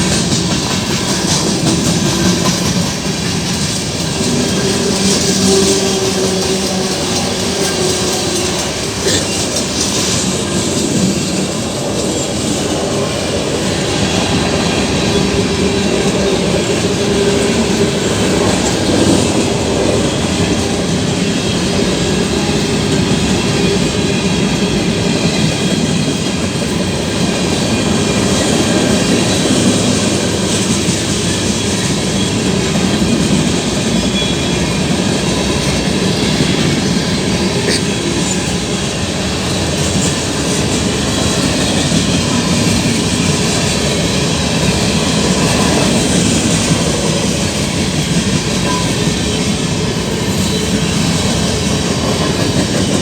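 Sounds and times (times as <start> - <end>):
train wheels clattering over rails: 0.0 - 53.0.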